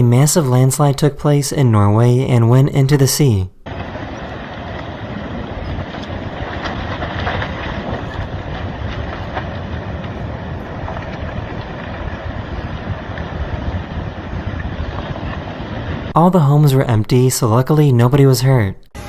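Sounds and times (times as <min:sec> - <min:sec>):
landslide rumble: 0:00.0 - 0:18.6
cracks and snaps: 0:05.7 - 0:13.3.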